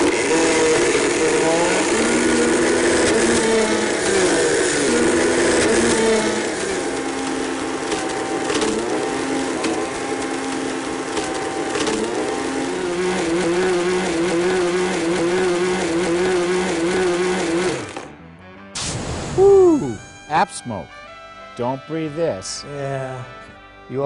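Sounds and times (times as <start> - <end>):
tablet cracking in blender: 0.0 - 12.6
blender motor running: 0.0 - 18.2.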